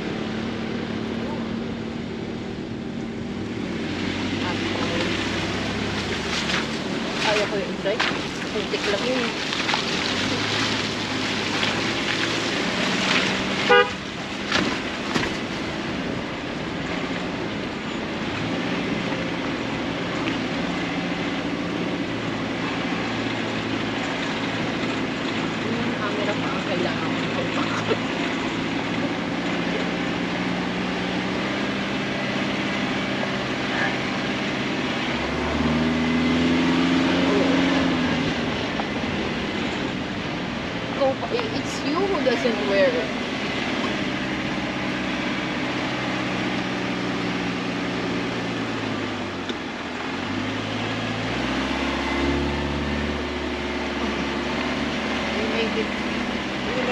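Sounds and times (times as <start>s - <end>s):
car engine running: 0.0s - 56.9s
road and tyre noise: 0.0s - 56.9s
car horn beep: 13.6s - 14.1s.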